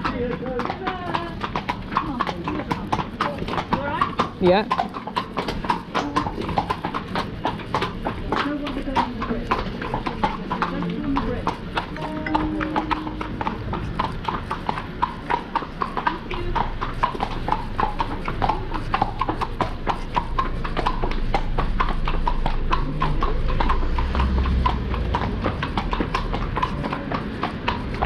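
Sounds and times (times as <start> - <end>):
horse hooves clip-clopping on street: 0.0 - 28.0
low rumble: 21.8 - 26.7.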